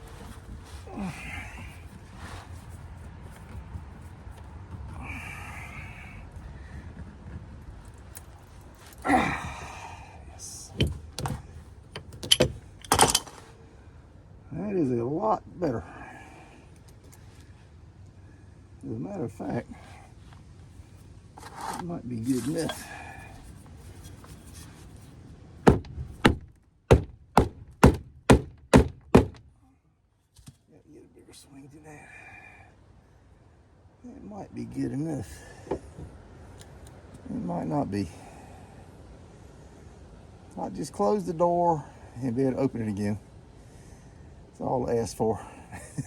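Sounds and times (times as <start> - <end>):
hammer blows on metal door: 25.7 - 29.4.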